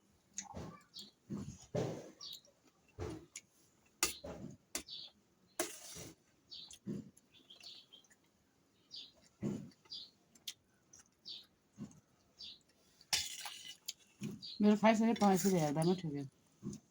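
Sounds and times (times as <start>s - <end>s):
chewing and mouth smacks: 0.3s - 1.2s, 9.2s - 12.8s.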